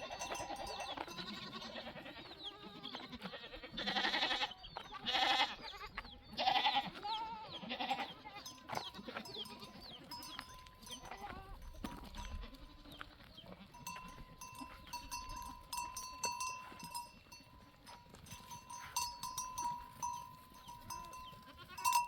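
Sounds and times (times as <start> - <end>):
livestock bells ringing: 0.0 - 2.1, 7.9 - 12.8, 13.6 - 22.0
sheep or goats bleating: 0.0 - 22.0.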